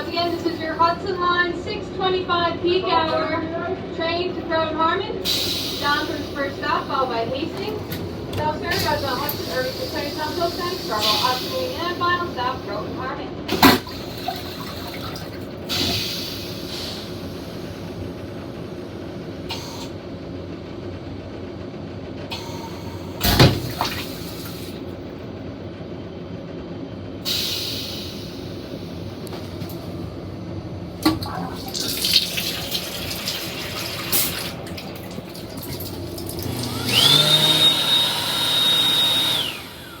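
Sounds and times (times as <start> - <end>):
train humming: 0.0 - 40.0
tap water running into basin: 13.6 - 15.6, 31.0 - 39.3
thump: 23.2 - 23.8.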